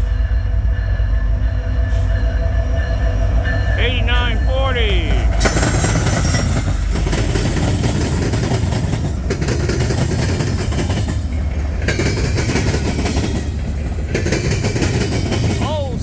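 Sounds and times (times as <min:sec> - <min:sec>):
train wheels rumbling on rails: 0:00.0 - 0:16.0
wheels clicking over rail joints: 0:05.4 - 0:16.0.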